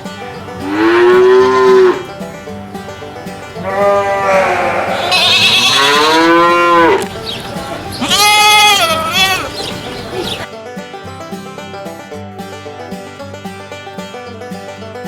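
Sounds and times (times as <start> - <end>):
cattle mooing: 0.6 - 2.2, 3.6 - 10.5.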